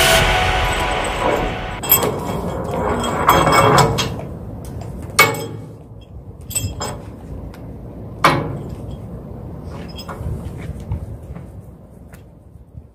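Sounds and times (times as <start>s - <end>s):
steady low rumble: 0.0s - 5.2s.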